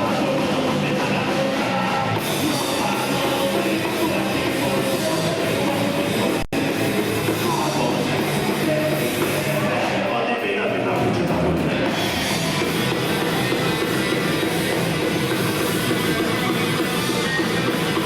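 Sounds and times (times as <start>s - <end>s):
drum kit: 0.0s - 18.0s
guitars: 0.0s - 18.0s
person singing: 0.0s - 18.0s.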